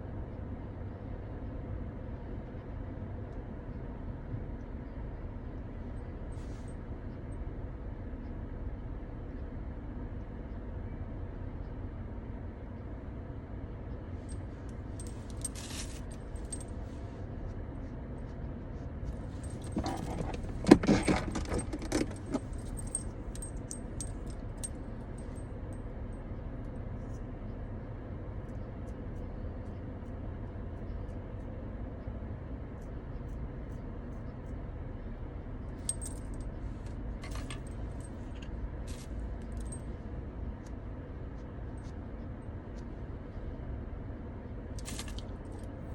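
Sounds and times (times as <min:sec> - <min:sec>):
steady low hum: 0:00.0 - 0:45.9
small hard objects clinking: 0:15.3 - 0:16.2, 0:44.8 - 0:45.3.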